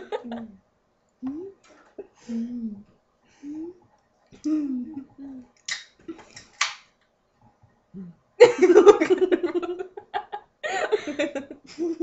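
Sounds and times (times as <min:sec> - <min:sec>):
girl's wordless voice: 0:02.2 - 0:03.8, 0:04.4 - 0:05.6.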